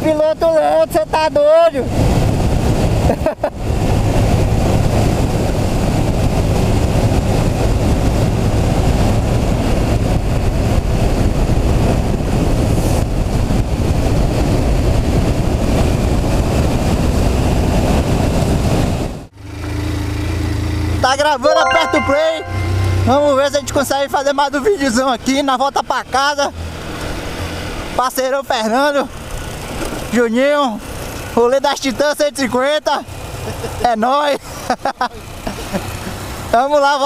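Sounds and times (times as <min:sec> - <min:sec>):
wind rushing over microphone: 0:01.8 - 0:19.3.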